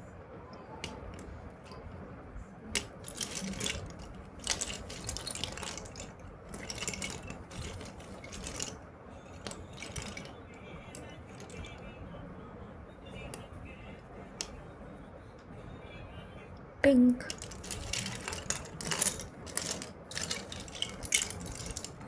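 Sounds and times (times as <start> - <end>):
packaging rustling: 2.8 - 8.8, 9.4 - 10.3, 17.3 - 22.0.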